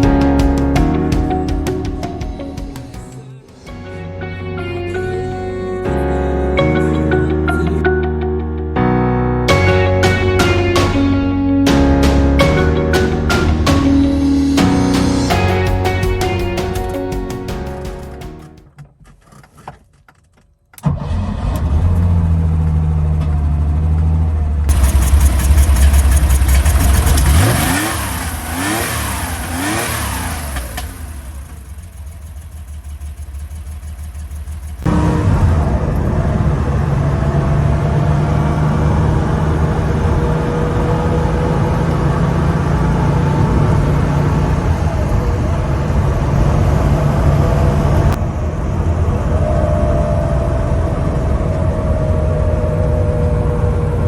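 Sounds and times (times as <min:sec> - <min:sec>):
car engine running: 0:22.0 - 0:49.3.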